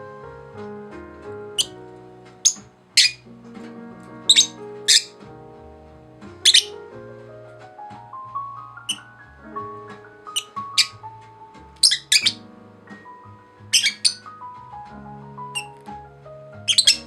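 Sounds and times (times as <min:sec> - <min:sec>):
background music of held notes: 0:00.0 - 0:17.0
parakeets chirping: 0:02.4 - 0:03.2, 0:04.3 - 0:05.1, 0:06.5 - 0:06.7, 0:10.3 - 0:11.1, 0:11.8 - 0:12.4, 0:13.7 - 0:14.3, 0:15.6 - 0:15.8, 0:16.7 - 0:17.0.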